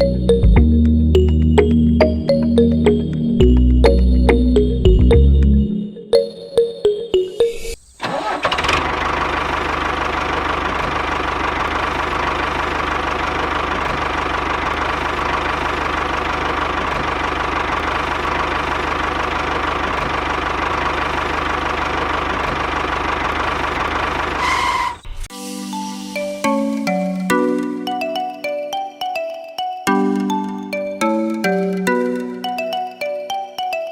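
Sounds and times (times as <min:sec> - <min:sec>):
small tractor engine knocking: 0:08.2 - 0:24.5.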